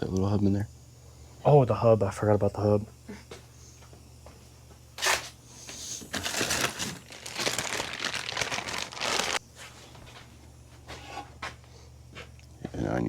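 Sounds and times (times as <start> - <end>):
crinkling and rustling: 6.0 - 10.3.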